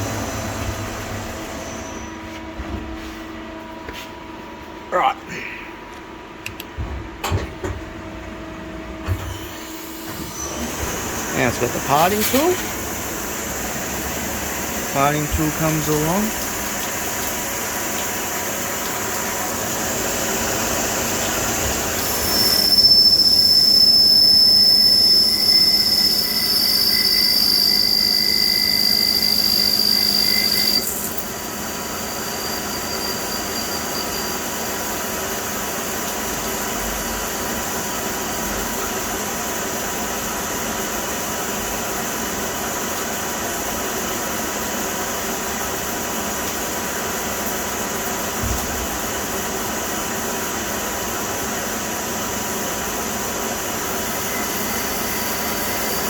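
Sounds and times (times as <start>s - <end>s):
lathe running: 0.0s - 2.1s
high-pitched cutting squeal: 1.2s - 2.2s, 22.0s - 34.6s, 54.1s - 56.0s.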